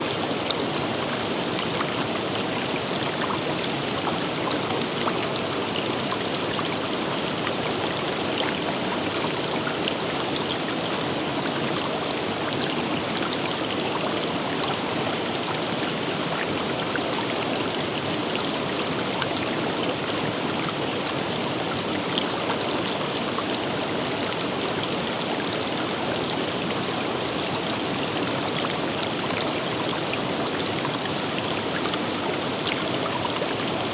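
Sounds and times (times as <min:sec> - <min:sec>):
stream rushing and splashing: 0:00.0 - 0:33.9.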